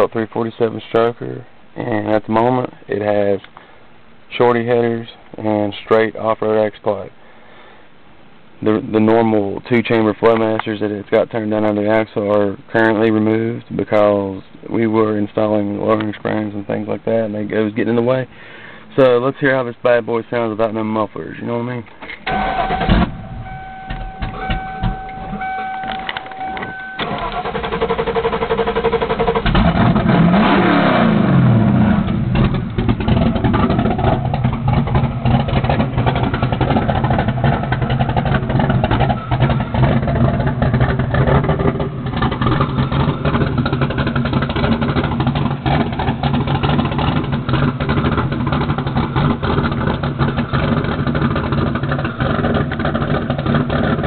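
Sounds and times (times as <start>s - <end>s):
v eight engine starting and revving: 22.2s - 25.7s, 26.8s - 54.0s
steady tone: 22.3s - 27.2s.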